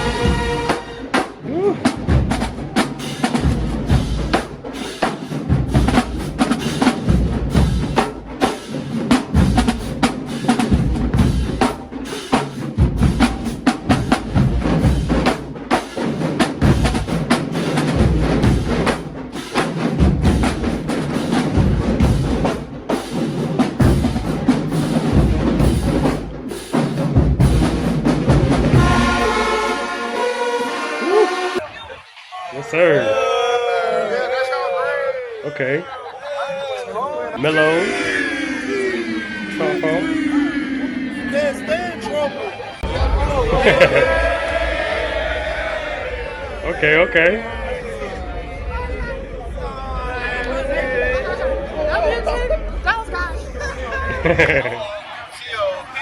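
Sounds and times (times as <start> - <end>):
bass and snare drums: 0.0 - 29.5, 42.8 - 51.2
heavy low bass: 37.4 - 54.8.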